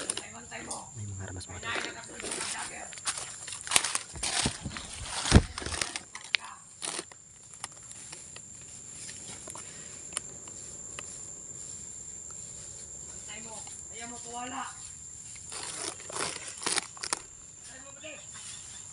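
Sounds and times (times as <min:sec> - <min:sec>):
high insect drone: 0:00.0 - 0:18.9
footsteps through dry leaves: 0:02.2 - 0:06.2
faint ticks: 0:07.1 - 0:11.2.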